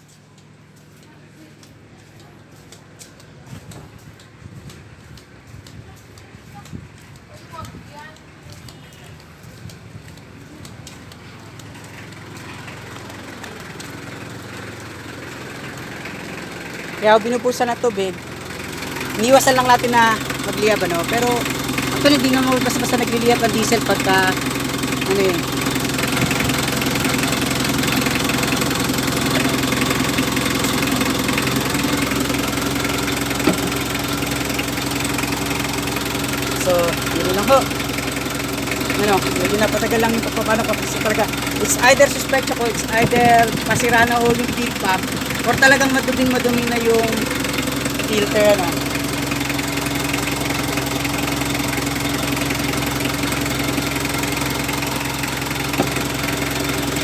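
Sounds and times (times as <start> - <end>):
diesel engine idling: 0.0 - 57.0
short engine knock: 8.5 - 57.0.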